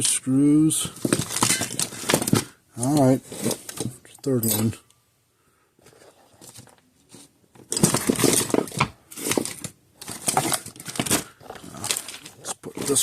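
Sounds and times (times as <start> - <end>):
faint handling: 0.8 - 4.9.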